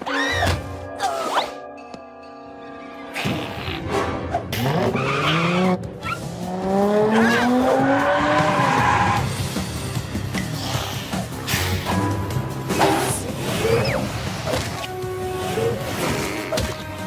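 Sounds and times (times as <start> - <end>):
background music: 0.0 - 17.0
tyres skidding: 3.9 - 16.9.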